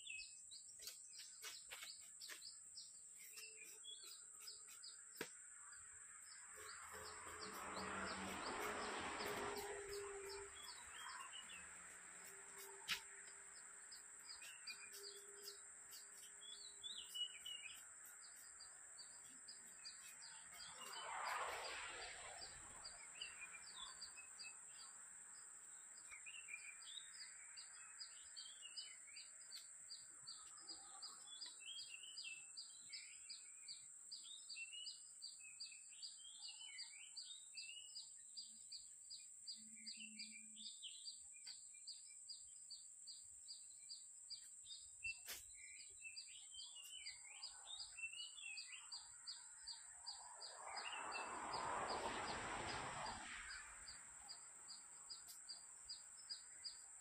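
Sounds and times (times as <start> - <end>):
faint birds chirping: 0.0 - 57.0.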